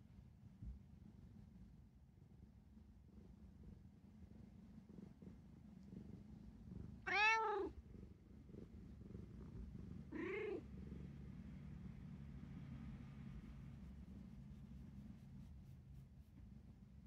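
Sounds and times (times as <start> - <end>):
low steady rumble: 0.0 - 17.0
cat meowing: 7.0 - 7.8, 10.1 - 10.6.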